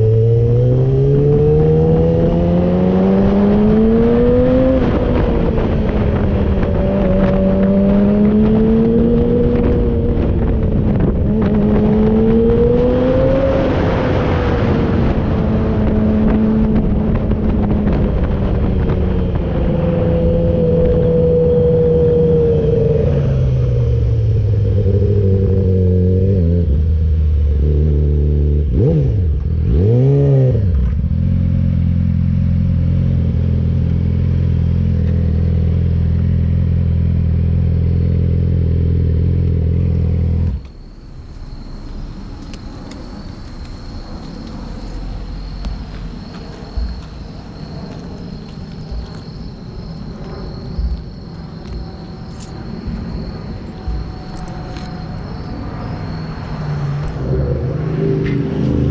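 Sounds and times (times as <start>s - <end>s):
motorcycle engine running: 14.9s - 49.3s
rushing noise: 40.5s - 58.9s.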